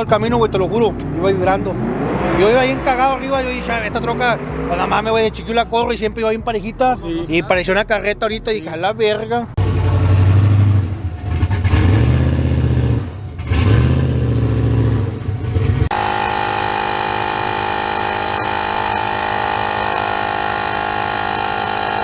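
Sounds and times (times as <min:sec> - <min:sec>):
vehicle engines running: 0:00.0 - 0:22.0
steady mechanical drone: 0:15.2 - 0:22.0.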